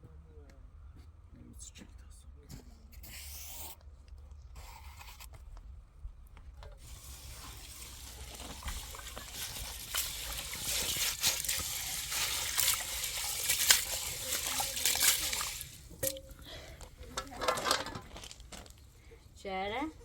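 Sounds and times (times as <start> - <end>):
water trickling and splashing: 6.8 - 19.0.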